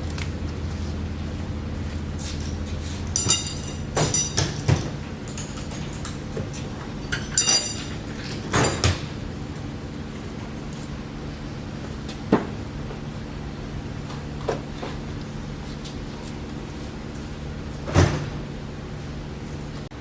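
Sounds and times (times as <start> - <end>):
steady low hum: 0.0 - 20.0
metal clinking and rattling: 2.4 - 9.2.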